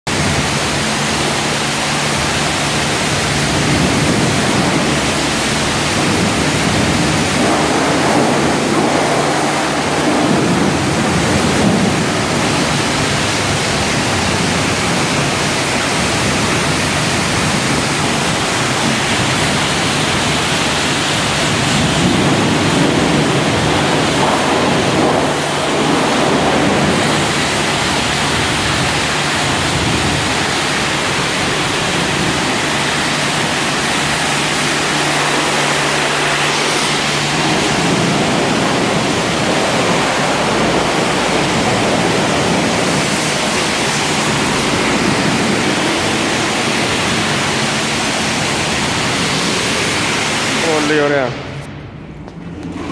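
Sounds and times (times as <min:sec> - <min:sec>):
water jets spraying: 0:00.1 - 0:52.9.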